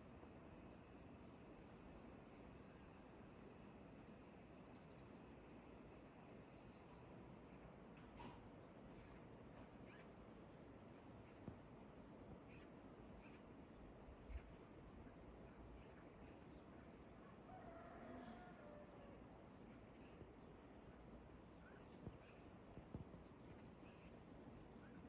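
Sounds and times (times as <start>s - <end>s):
crickets chirping: 0.0s - 25.0s
faint bird chirps: 6.6s - 25.0s.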